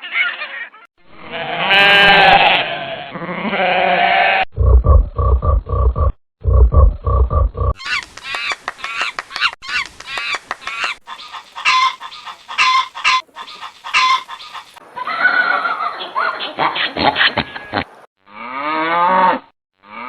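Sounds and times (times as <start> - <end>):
poultry chattering and clucking: 0.0 - 0.8, 7.8 - 18.1.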